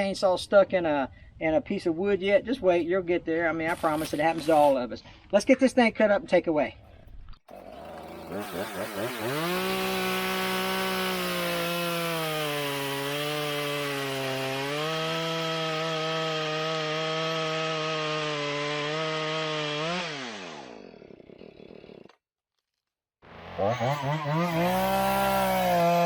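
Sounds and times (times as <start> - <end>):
chainsaw cutting wood: 7.5 - 22.2, 23.2 - 26.0.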